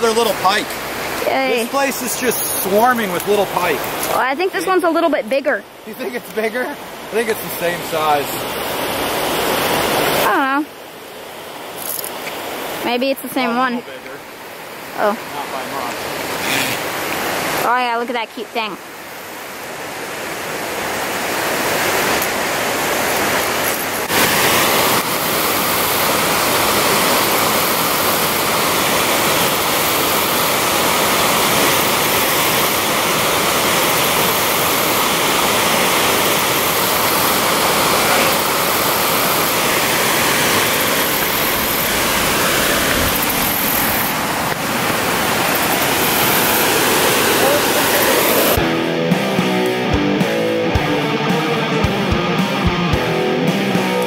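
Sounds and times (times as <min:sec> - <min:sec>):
water rushing over spillway: 0:00.0 - 0:54.0.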